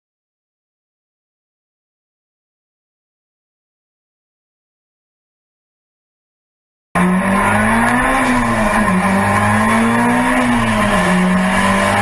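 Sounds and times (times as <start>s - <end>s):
car engine at high revs: 7.0s - 12.0s.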